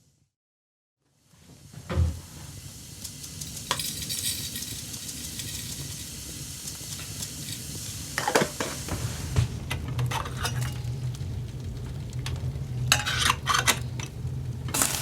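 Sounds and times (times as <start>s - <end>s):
food sizzling in a pan: 1.1s - 15.0s
utensil clinking on pan: 12.9s - 14.1s.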